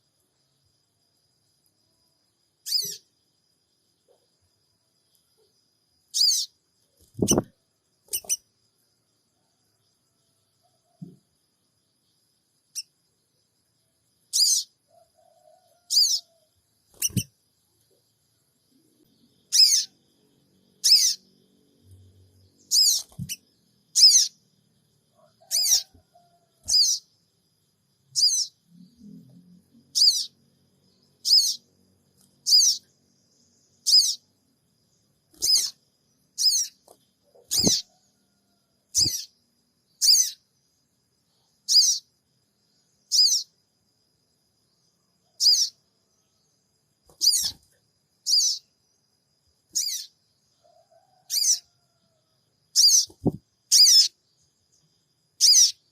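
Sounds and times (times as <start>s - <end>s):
high-pitched bird call: 20.8s - 21.2s, 25.5s - 25.9s, 28.2s - 28.5s, 35.4s - 35.8s.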